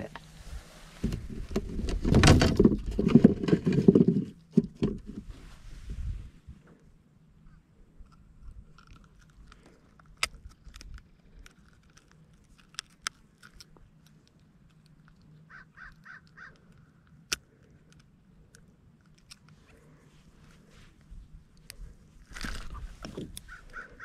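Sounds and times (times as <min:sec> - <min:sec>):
bird calling: 0:15.5 - 0:16.7, 0:22.6 - 0:24.0.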